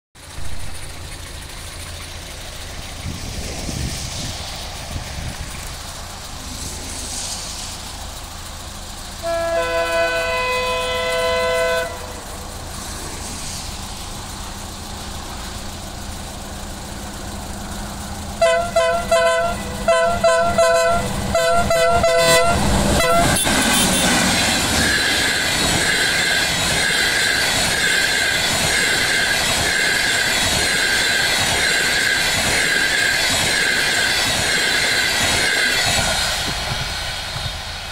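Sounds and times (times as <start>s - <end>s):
train passing close by: 0.2s - 37.9s
wheels ringing on rails: 0.2s - 37.9s
train air horn blasts: 9.1s - 12.4s, 18.4s - 26.1s.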